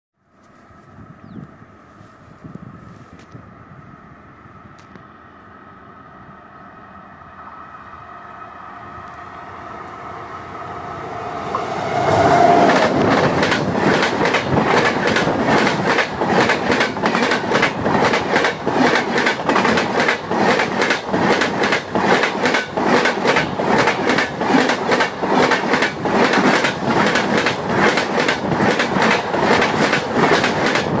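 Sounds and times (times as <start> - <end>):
passenger train passing: 0.4 - 31.0
wheels clattering over rail joints: 11.5 - 31.0.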